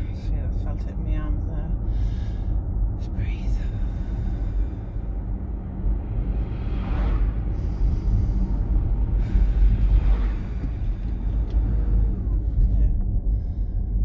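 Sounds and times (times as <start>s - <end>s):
road and tyre rumble: 0.0s - 14.0s
passing traffic whooshing: 3.8s - 12.8s.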